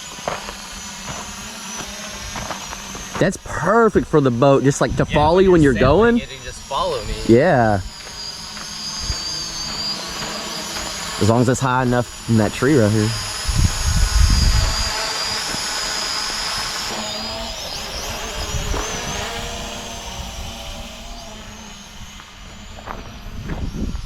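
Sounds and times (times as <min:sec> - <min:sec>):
drone propellers whining: 0:00.0 - 0:24.0
wind rumble on microphone: 0:04.8 - 0:06.2, 0:13.2 - 0:15.0, 0:18.0 - 0:22.2, 0:22.8 - 0:24.0.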